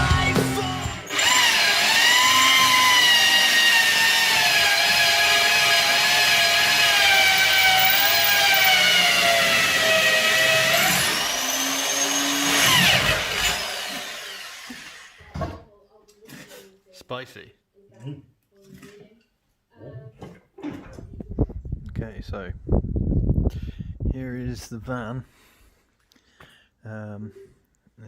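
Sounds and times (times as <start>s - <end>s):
electric power tool whining: 0.0s - 15.3s.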